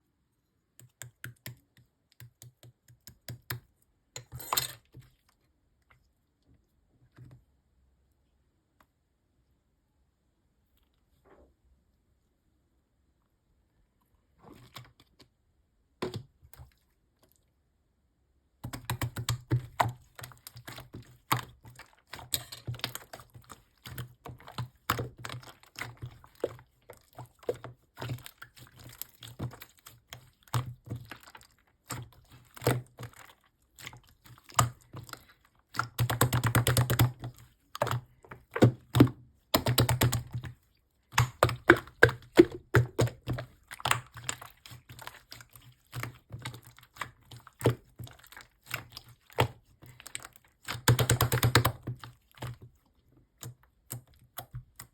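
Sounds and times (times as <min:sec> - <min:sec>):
hands squishing slime: 0:18.6 - 0:54.9.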